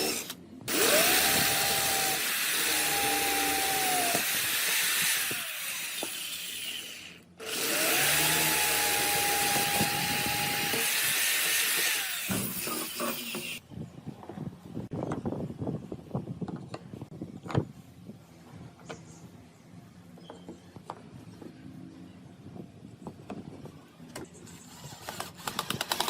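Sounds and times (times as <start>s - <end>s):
power tool motor whine: 0.0s - 13.5s
wood cutting noise: 0.0s - 13.6s.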